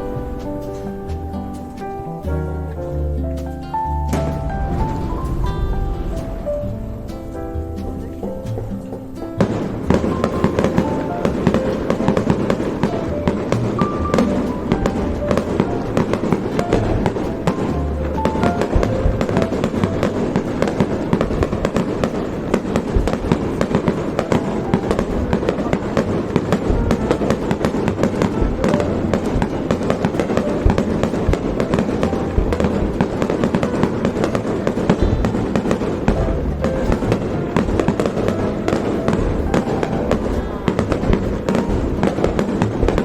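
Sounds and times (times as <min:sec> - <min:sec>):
fireworks bangs and crackles: 0:04.0 - 0:43.0.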